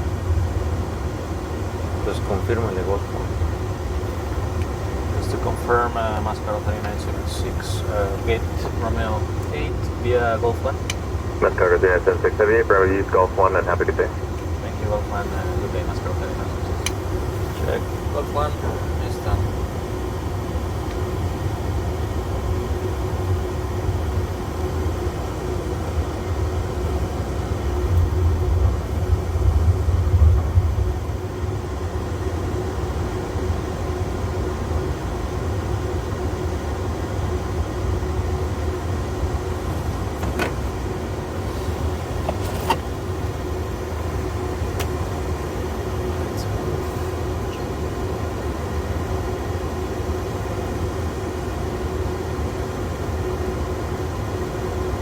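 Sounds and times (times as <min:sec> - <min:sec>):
steady hum: 0:00.0 - 0:55.0
cockpit low rumble: 0:02.0 - 0:19.7, 0:20.6 - 0:34.8.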